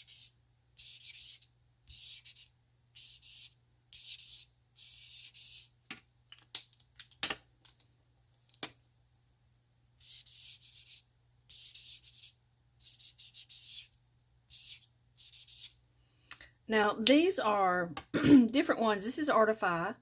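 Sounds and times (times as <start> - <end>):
marker scratching on paper: 0.0 - 5.7, 10.0 - 13.9, 14.5 - 15.8.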